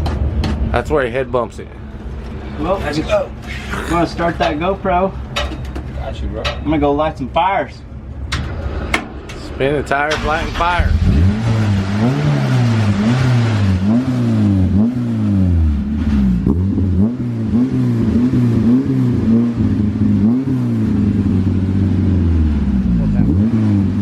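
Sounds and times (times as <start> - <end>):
truck engine revving: 8.4 - 24.0.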